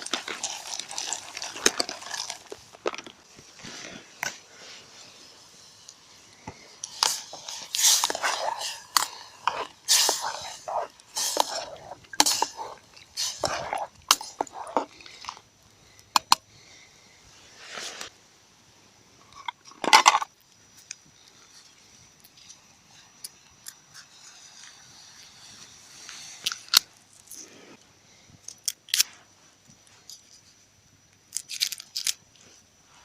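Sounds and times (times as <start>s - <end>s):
loud crunching noises: 0.0s - 4.8s, 6.5s - 15.4s
campfire crackling: 0.0s - 16.3s.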